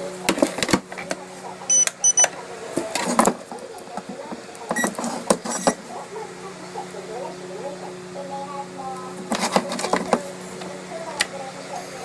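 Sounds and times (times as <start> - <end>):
short electronic beeps: 1.7 - 2.3.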